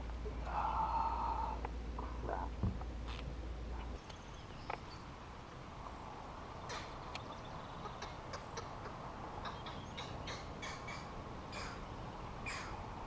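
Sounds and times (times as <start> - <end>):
low background hiss: 0.0 - 13.0
birds harsh calls: 6.4 - 13.0.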